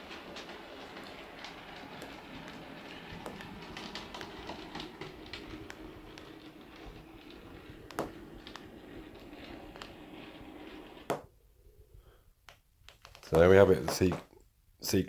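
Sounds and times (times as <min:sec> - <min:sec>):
model locomotive motor hum: 0:00.0 - 0:11.2
wheels clicking over rail joints: 0:00.0 - 0:11.4, 0:13.0 - 0:14.3.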